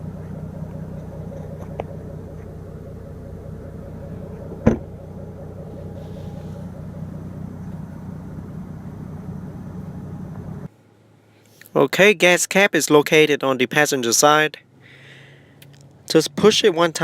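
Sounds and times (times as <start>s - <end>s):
car engine idling: 0.0s - 10.7s
sharp thump: 4.2s - 6.8s.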